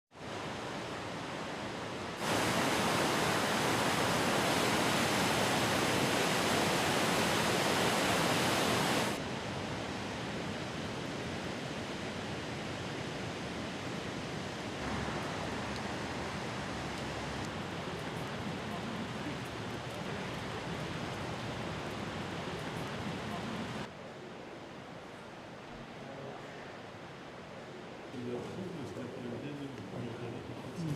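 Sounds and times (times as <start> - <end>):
fast-flowing water rushing: 0.2 - 10.1, 11.9 - 23.9.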